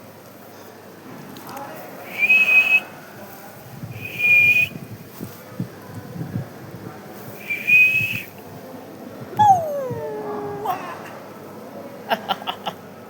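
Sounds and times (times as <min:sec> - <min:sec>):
puppy whining: 0:09.3 - 0:11.1.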